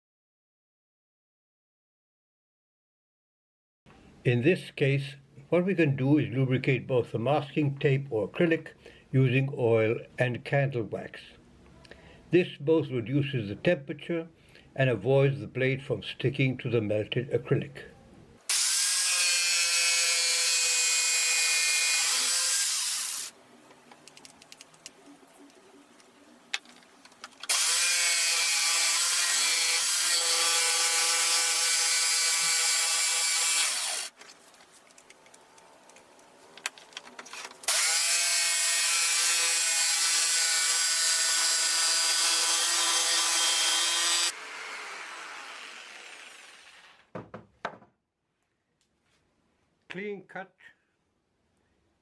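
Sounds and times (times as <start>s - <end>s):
jigsaw cutting plastic sheet: 26.6s - 34.3s, 36.7s - 47.1s.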